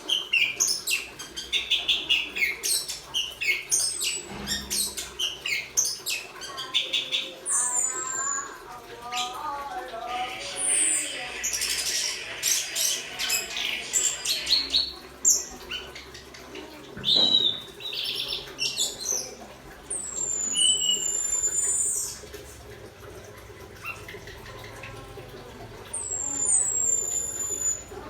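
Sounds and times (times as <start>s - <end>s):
thrush singing: 6.5s - 15.6s.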